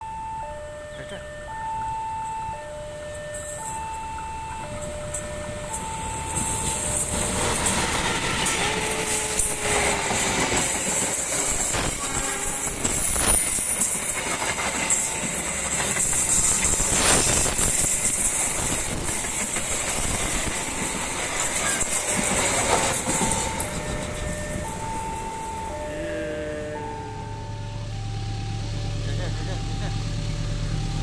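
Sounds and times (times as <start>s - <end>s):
steady rush of rail noise: 0.0s - 31.0s
wheels clattering over rail joints: 0.2s - 27.9s.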